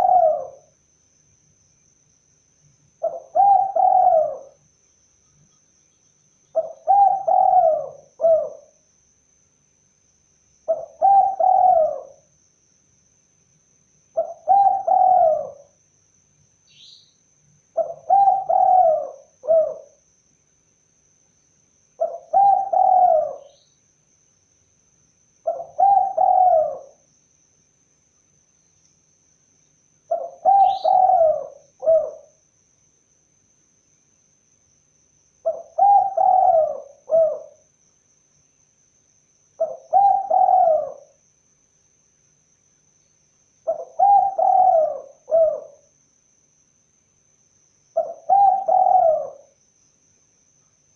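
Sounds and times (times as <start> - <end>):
dove cooing: 0.0 - 0.7, 3.0 - 4.6, 6.5 - 8.8, 10.7 - 12.3, 14.2 - 15.8, 17.8 - 20.0, 22.0 - 23.6, 25.4 - 27.0, 30.1 - 32.4, 35.4 - 37.6, 39.6 - 41.2, 43.6 - 45.9, 48.0 - 49.6
faint bird chirp: 0.0 - 9.1, 10.6 - 20.1, 21.2 - 24.0, 25.4 - 27.3, 28.1 - 32.5, 35.4 - 37.8, 39.5 - 41.3, 42.9 - 46.0, 47.9 - 50.9.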